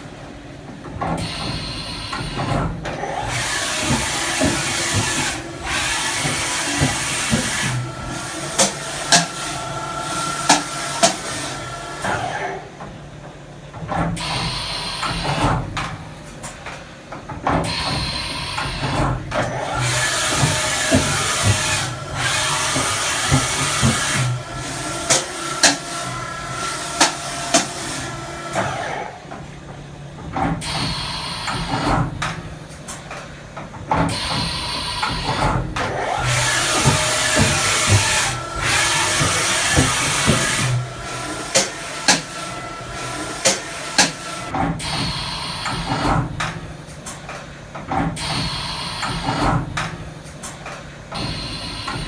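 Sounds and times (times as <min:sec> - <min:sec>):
machining center running: 0:00.0 - 0:52.0
machine hissing: 0:03.2 - 0:12.3, 0:19.9 - 0:28.9, 0:30.6 - 0:31.9, 0:36.1 - 0:46.0, 0:48.2 - 0:49.4.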